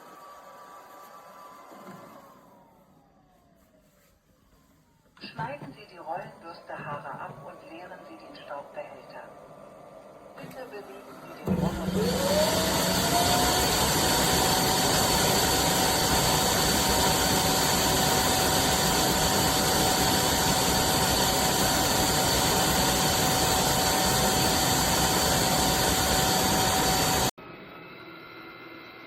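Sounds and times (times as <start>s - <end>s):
vacuum motor running: 10.4s - 27.3s.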